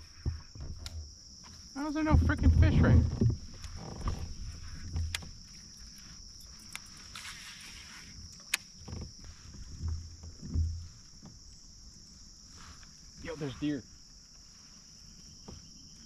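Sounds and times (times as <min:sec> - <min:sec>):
insect chorus: 0:00.0 - 0:16.0
knocks on kayak hull: 0:09.8 - 0:10.9.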